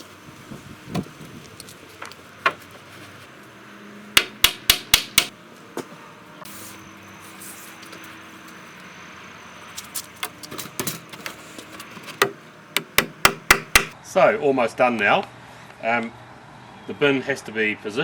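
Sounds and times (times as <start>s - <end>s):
hammer knocking on wood: 4.2s - 5.3s, 12.2s - 14.0s.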